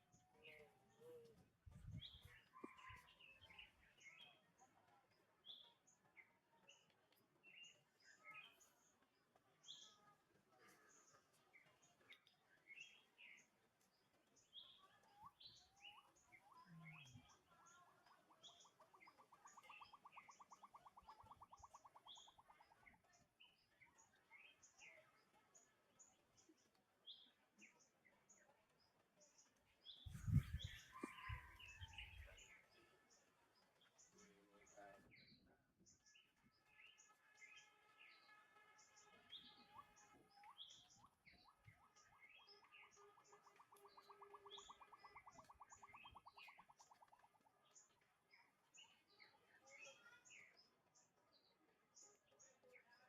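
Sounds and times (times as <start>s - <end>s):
birds chirping: 14.4s - 50.7s
high bird chirps: 18.1s - 23.6s, 29.9s - 32.5s, 39.3s - 47.4s
bird trilling: 40.4s - 47.2s.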